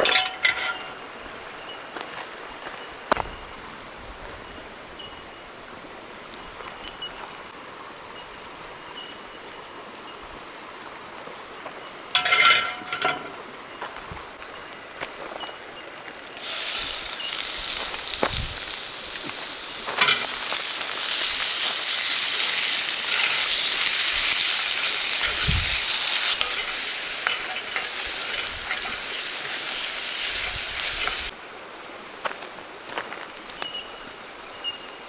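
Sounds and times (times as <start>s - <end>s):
food sizzling in a hot pan: 16.4s - 31.4s.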